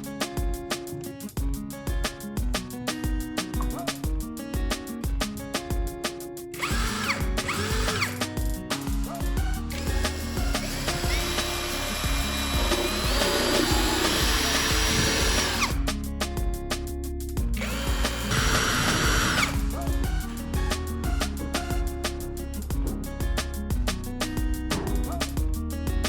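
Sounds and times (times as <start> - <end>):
background music: 0.0 - 26.0
small electric motor whining: 6.6 - 8.2, 9.6 - 15.8, 17.6 - 19.7.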